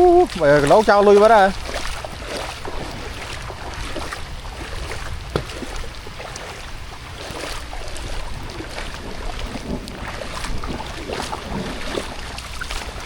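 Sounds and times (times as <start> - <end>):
rain: 0.0 - 13.0
small water drips: 0.0 - 13.0
water sloshing and splashing: 0.0 - 13.0
wind rumble on microphone: 0.0 - 13.0.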